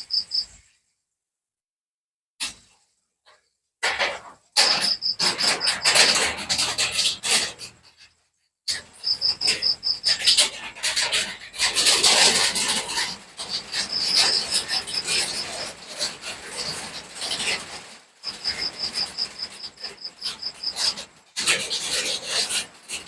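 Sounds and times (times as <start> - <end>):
cricket chirping in pulsed trills: 0.0 - 0.5, 4.6 - 6.0, 9.0 - 10.3, 18.2 - 20.9.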